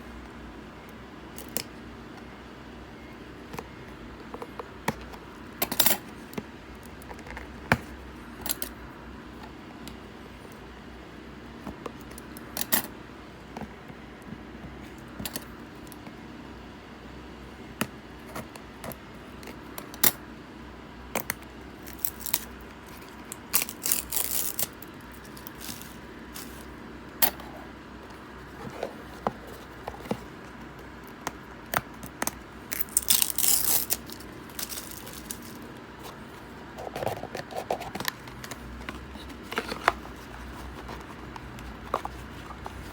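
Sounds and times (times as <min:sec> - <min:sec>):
wrapper crinkling rustle: 0:23.4 - 0:26.7, 0:32.7 - 0:35.8.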